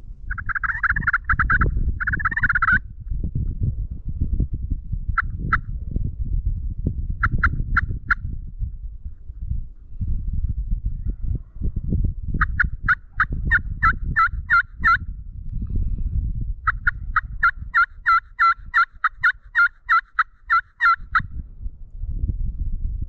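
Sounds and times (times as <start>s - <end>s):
low rumble: 0.0s - 14.2s, 15.0s - 17.7s, 21.2s - 23.0s
turkey yelping: 0.3s - 2.8s, 7.2s - 8.0s, 12.4s - 15.0s, 16.7s - 21.2s.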